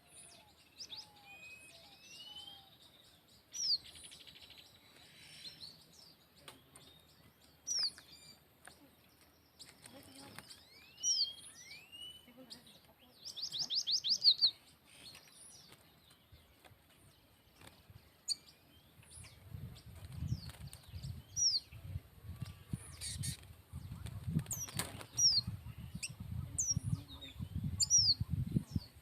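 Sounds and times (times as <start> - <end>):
small birds chirping: 0.0 - 29.0
bird trill: 10.4 - 12.4
bird wings flapping: 15.0 - 17.9, 19.9 - 21.1, 23.2 - 25.3.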